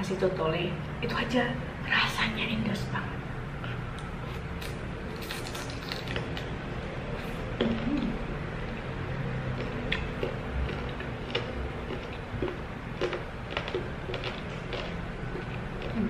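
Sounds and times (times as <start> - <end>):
person chewing meat: 3.6 - 16.0.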